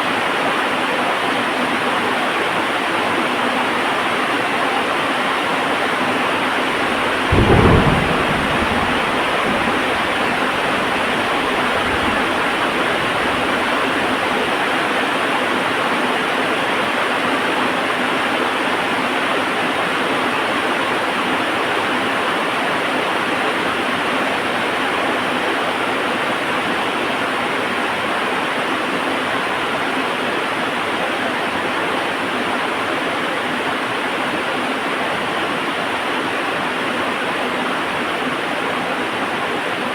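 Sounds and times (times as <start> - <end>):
heavy rain: 6.0 - 15.7
thunder: 6.3 - 15.0.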